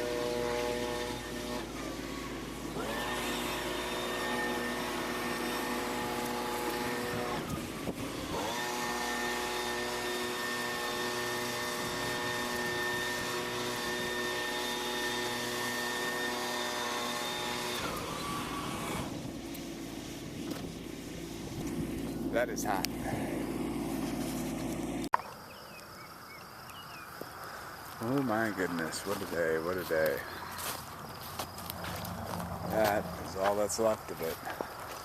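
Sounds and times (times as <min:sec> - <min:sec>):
engine running at high speed: 0:00.0 - 0:25.1, 0:31.5 - 0:33.6.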